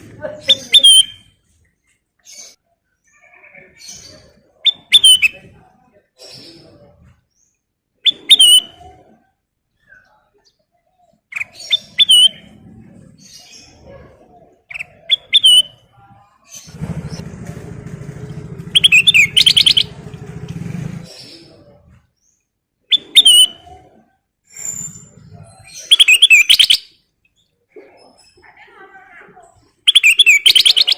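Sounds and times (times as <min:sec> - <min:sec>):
bulbul singing whistled phrases: 0:00.5 - 0:01.4, 0:02.3 - 0:05.4, 0:08.0 - 0:08.8, 0:11.3 - 0:12.6, 0:14.7 - 0:15.9, 0:18.8 - 0:20.0, 0:22.9 - 0:23.7, 0:24.5 - 0:26.9, 0:29.9 - 0:30.9.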